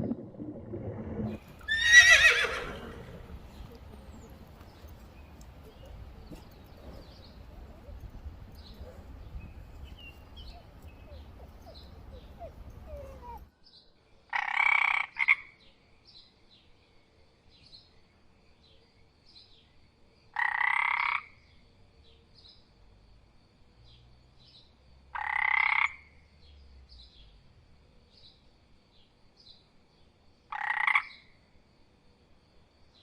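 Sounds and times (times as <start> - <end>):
animal calling loudly: 1.6 - 3.8, 10.5 - 13.4
faint high chirping: 1.6 - 13.6.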